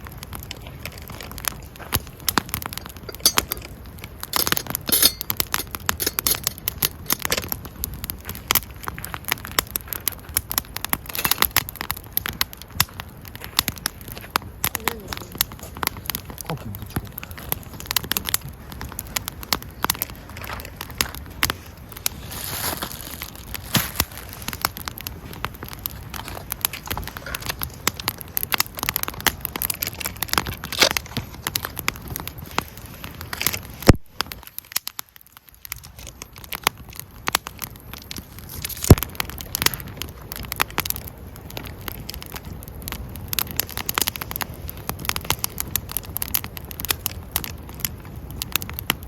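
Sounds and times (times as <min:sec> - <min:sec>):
wood fire crackling: 0:00.0 - 0:49.0.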